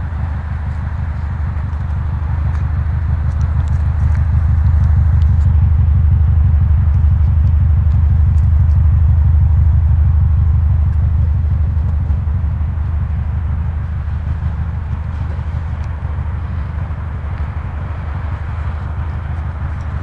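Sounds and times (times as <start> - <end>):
boxer engine running: 0.0 - 20.0.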